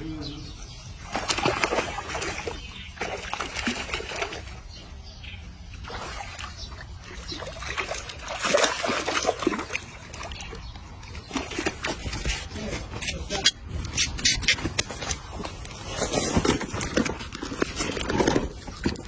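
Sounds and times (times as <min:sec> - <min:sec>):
water splashing and trickling: 0:00.0 - 0:19.0.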